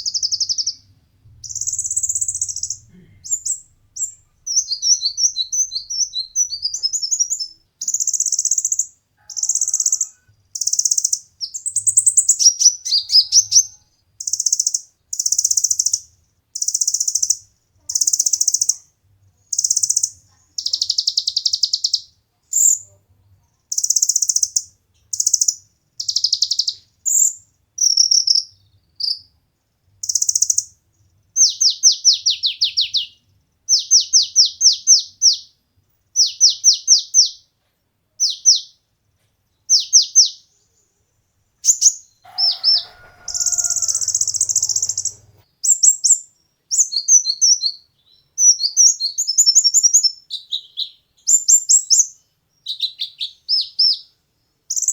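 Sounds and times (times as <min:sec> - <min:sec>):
sunbird singing: 0:00.0 - 0:18.8, 0:19.5 - 0:22.9, 0:41.6 - 0:54.9.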